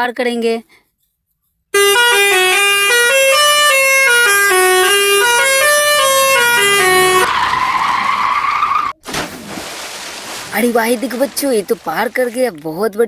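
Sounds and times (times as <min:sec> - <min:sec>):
horn-like melody: 0:01.8 - 0:07.3.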